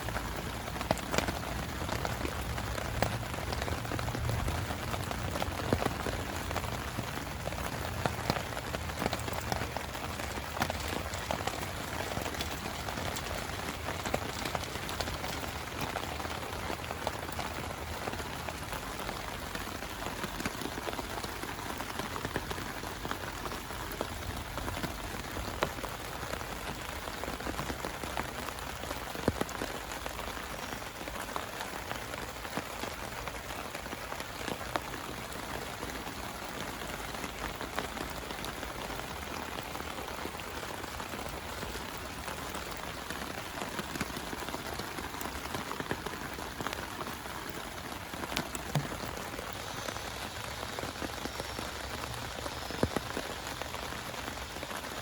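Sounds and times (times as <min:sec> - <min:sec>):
heavy rain falling: 0:00.0 - 0:55.0
drops ticking on a surface: 0:42.7 - 0:53.8.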